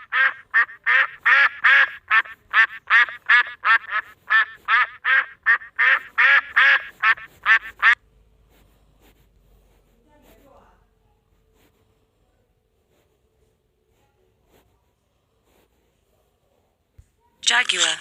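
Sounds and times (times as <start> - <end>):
duck quacking: 0.0 - 8.0.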